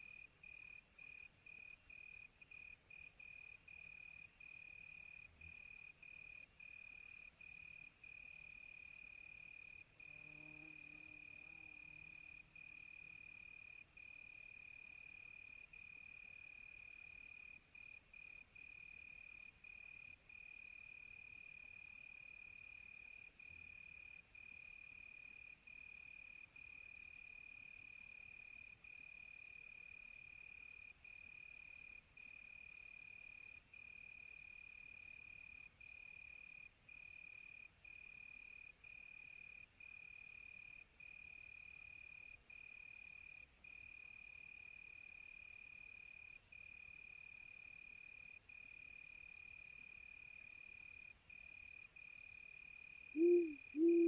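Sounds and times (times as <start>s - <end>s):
crickets chirping: 0.0s - 54.0s
faint high hiss: 53.2s - 54.0s.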